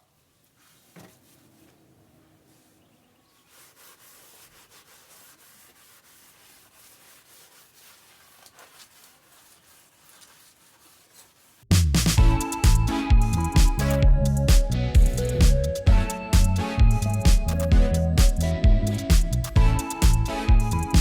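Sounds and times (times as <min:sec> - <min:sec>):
scratchy rubbing strokes: 0:02.4 - 0:12.2.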